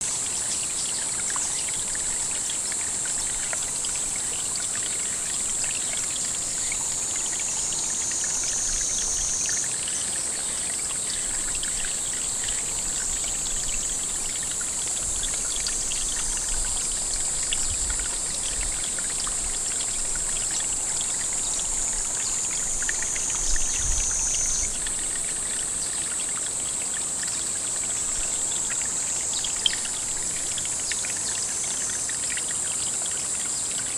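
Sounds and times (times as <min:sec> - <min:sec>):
high-pitched insect chorus: 0:00.0 - 0:33.9
water trickling into a pond: 0:00.0 - 0:33.9.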